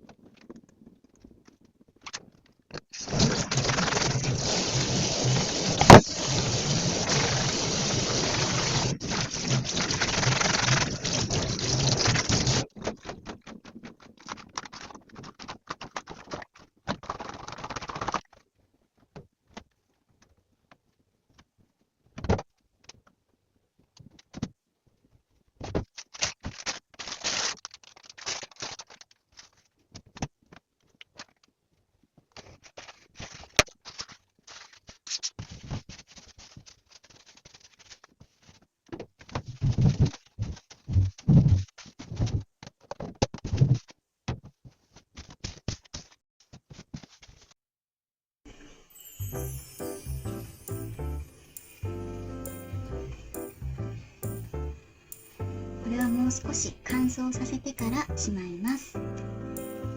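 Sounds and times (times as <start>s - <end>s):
tap water running: 3.2s - 10.1s.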